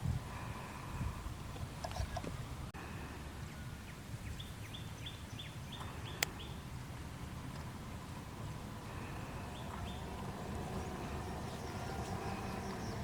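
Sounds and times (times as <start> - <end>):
low background rumble: 5.4 - 13.0.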